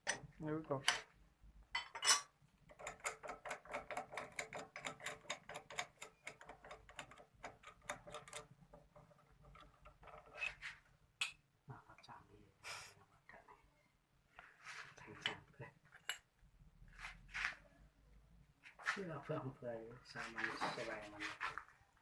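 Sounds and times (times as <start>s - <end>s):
rapid even clicking: 2.7s - 10.2s.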